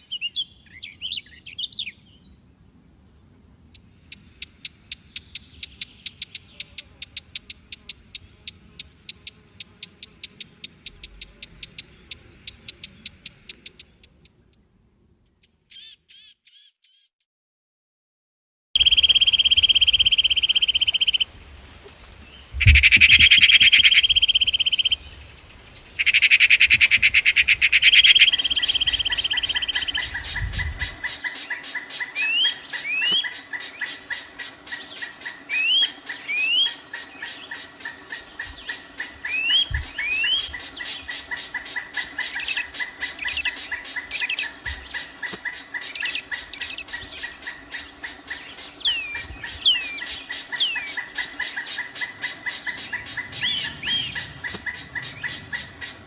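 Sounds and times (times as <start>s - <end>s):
birds chirping: 0.0s - 17.1s, 18.8s - 21.3s, 22.0s - 56.0s
dense high pulsing: 52.1s - 56.0s.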